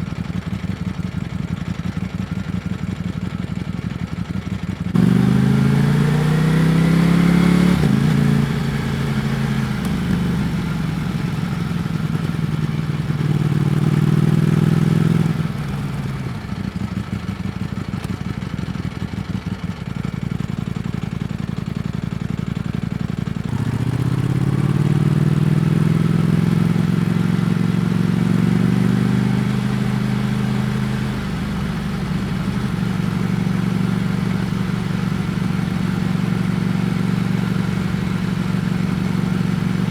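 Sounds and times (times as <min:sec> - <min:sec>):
motorcycle engine accelerating: 0:04.9 - 0:39.9
gear upshift: 0:07.4 - 0:15.9.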